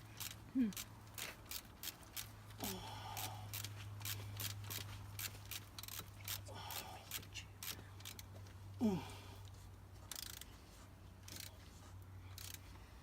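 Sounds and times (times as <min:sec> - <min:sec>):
ratchet wrench clicking: 0:00.0 - 0:02.3, 0:03.2 - 0:08.3, 0:10.1 - 0:10.5, 0:11.2 - 0:11.5, 0:12.3 - 0:12.6.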